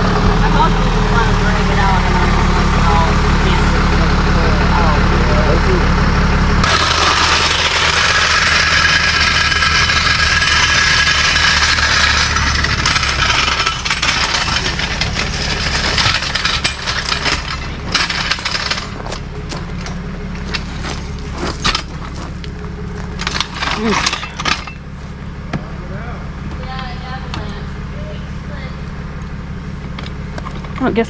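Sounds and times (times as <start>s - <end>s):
vehicle engine idling: 0.0s - 31.0s
sharp clicks and clanks: 6.6s - 24.8s.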